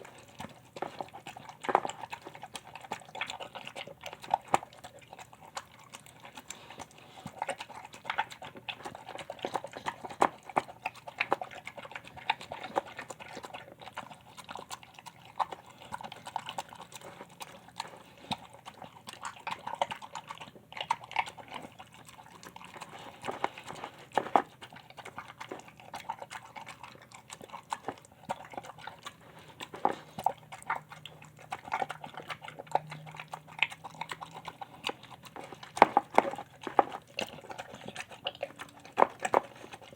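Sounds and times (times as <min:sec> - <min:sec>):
dog chewing and crunching: 0:00.0 - 0:39.9.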